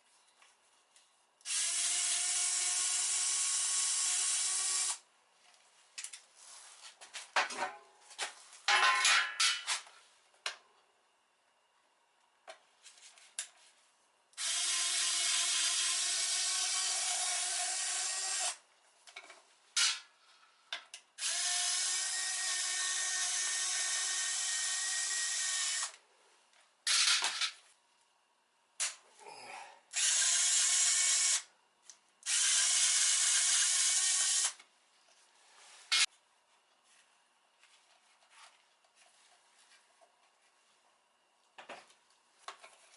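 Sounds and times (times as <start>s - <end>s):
electric drill running: 1.5s - 5.0s, 14.4s - 18.6s, 21.2s - 25.9s, 29.9s - 31.5s, 32.3s - 34.6s.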